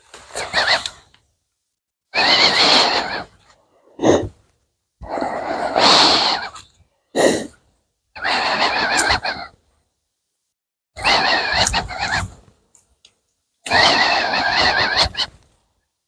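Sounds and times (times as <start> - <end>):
heavy breathing through a respirator: 3.6 - 4.4, 5.0 - 7.6.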